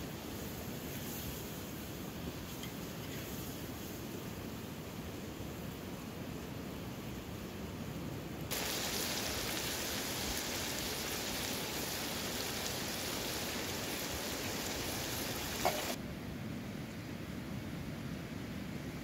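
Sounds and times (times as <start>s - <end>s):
liver sizzling in a pot: 8.5s - 16.0s.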